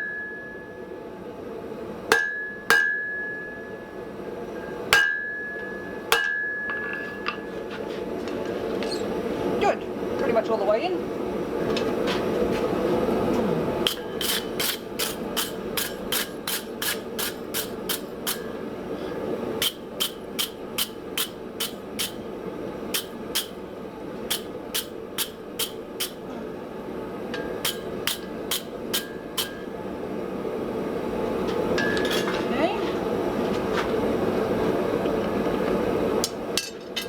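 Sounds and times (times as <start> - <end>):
hammer ringing on anvil: 0.0 - 0.8, 2.1 - 3.9, 4.6 - 7.5, 27.3 - 28.3, 31.8 - 32.3
steady background hum: 0.0 - 37.0.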